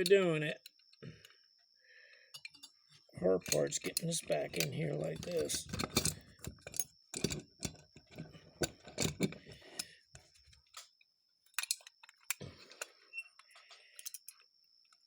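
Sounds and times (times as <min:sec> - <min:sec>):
small metal parts clicking: 0:03.4 - 0:10.0, 0:10.6 - 0:15.0.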